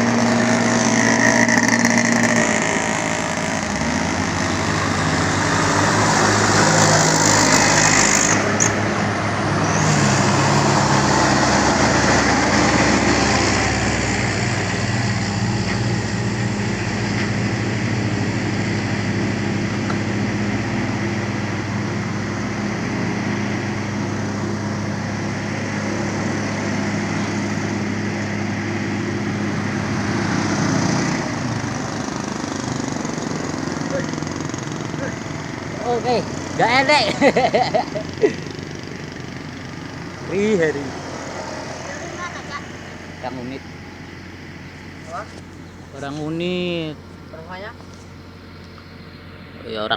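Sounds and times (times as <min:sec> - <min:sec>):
engine running: 0:00.0 - 0:49.9.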